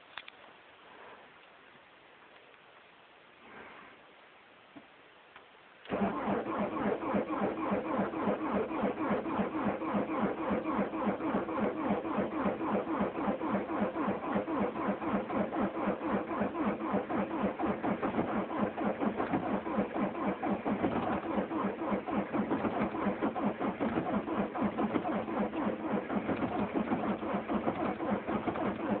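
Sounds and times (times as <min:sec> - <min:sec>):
diesel engine cranking on starter: 0:05.8 - 0:29.0.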